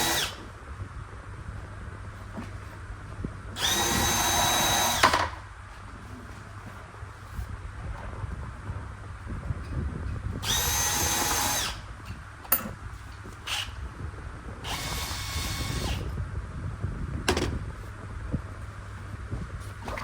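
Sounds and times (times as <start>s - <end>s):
power drill running: 0.0s - 0.4s, 3.6s - 5.2s, 10.4s - 11.8s, 14.6s - 16.2s.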